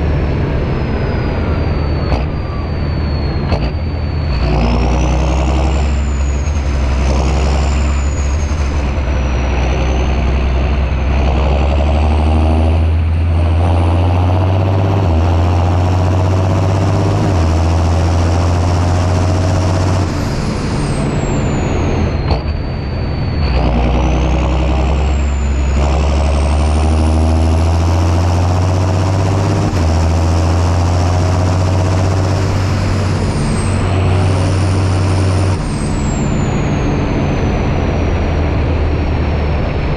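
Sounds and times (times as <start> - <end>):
tractor diesel engine under load: 0.0 - 39.9
faint high whistle: 0.6 - 6.8, 7.5 - 10.2, 19.7 - 25.9, 33.0 - 38.4.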